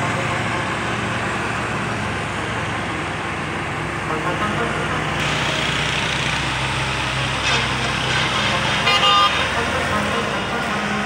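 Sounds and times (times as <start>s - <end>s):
road noise: 0.0s - 11.0s
truck engine running: 0.0s - 11.0s.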